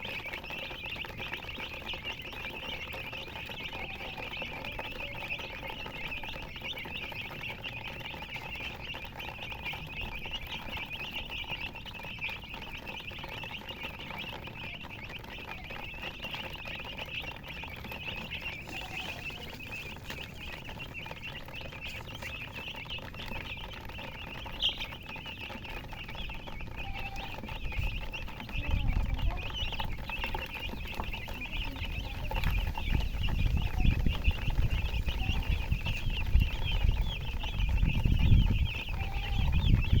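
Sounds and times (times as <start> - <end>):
baby chicks peeping: 0.0 - 40.0
low rumbling thumps: 18.3 - 40.0.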